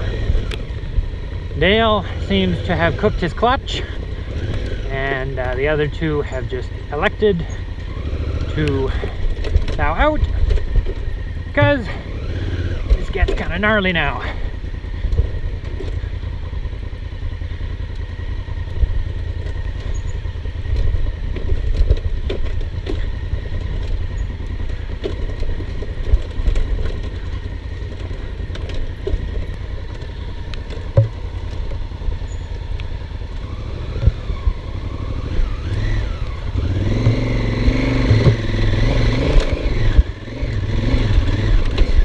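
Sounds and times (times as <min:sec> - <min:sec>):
motorcycle engine running: 0:00.0 - 0:42.0
bike knocking over rocks: 0:20.7 - 0:31.8.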